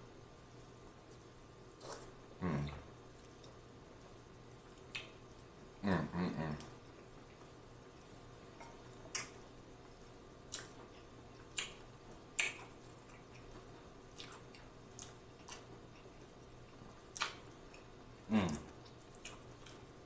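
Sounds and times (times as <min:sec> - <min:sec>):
wet lip smacks while chewing: 0:04.7 - 0:05.2, 0:08.6 - 0:09.4, 0:10.5 - 0:16.4, 0:17.1 - 0:17.9, 0:18.5 - 0:19.9.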